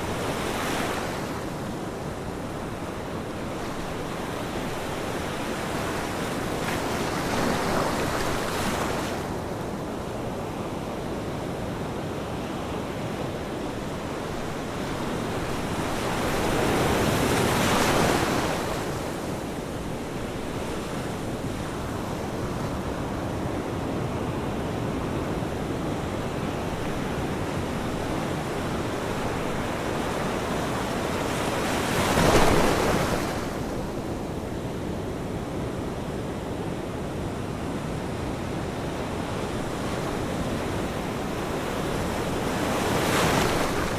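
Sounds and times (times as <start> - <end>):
large waves breaking: 0.0 - 9.8, 12.8 - 43.9
ocean surf washing on shore: 12.7 - 43.9.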